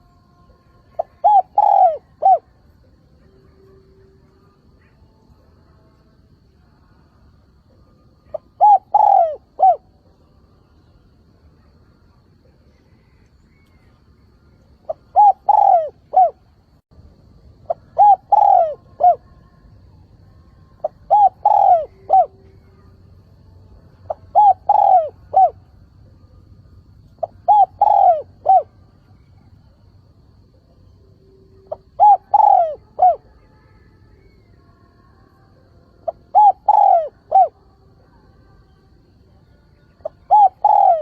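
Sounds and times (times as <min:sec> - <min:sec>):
dove cooing: 0:00.9 - 0:02.6, 0:08.2 - 0:10.0, 0:14.8 - 0:16.5, 0:17.6 - 0:19.4, 0:20.8 - 0:22.8, 0:24.0 - 0:25.7, 0:27.2 - 0:29.7, 0:31.6 - 0:33.5, 0:36.0 - 0:37.6, 0:40.0 - 0:41.0.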